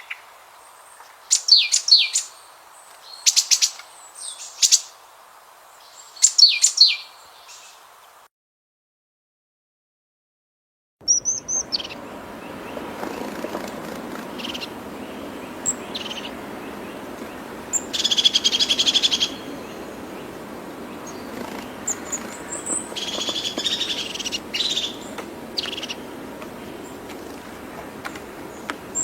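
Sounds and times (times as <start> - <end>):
small birds singing: 0.0 - 7.9, 11.0 - 29.0
background hiss: 0.0 - 8.3, 11.0 - 29.0
high bird chirps: 11.0 - 29.0
loud rapid bird trills: 11.0 - 29.0.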